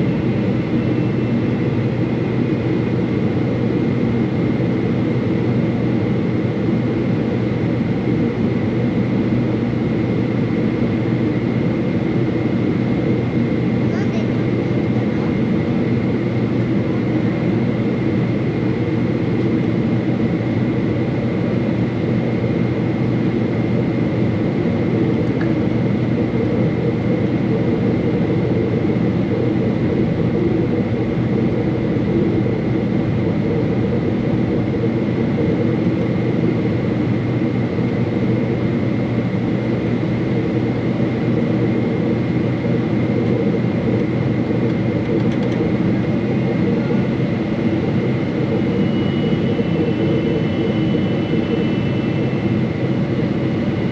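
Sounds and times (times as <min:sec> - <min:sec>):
airliner cabin engine rush: 0:00.0 - 0:53.9
thin high whine: 0:46.0 - 0:53.9.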